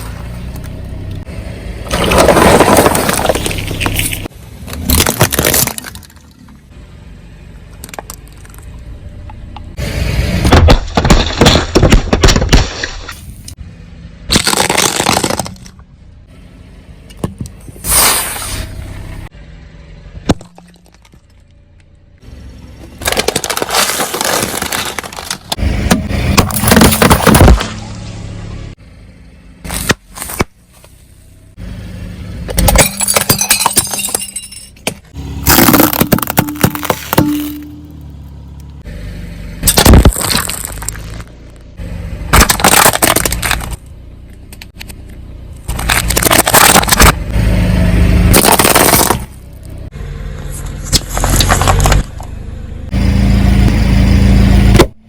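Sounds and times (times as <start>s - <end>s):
tyre crushing brittle objects: 1.9s - 6.4s, 10.4s - 13.2s, 14.3s - 15.8s, 22.8s - 27.8s, 35.4s - 37.8s, 39.6s - 41.3s, 42.3s - 43.9s, 45.6s - 47.2s, 48.3s - 49.4s, 50.8s - 52.2s.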